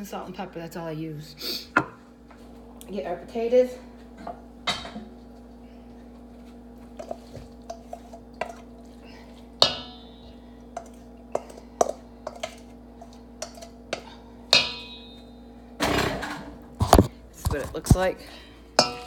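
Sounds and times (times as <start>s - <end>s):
steady low hum: 0.0s - 19.0s
ringing clank: 14.6s - 15.2s.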